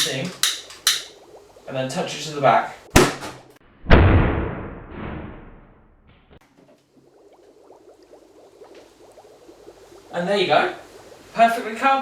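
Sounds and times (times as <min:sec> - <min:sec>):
gas igniting with a loud bang: 0:02.9 - 0:05.8.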